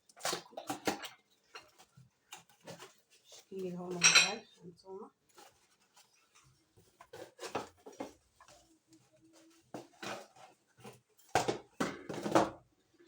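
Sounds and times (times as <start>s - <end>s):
dishes knocking and clinking: 3.9s - 4.5s, 11.3s - 12.6s.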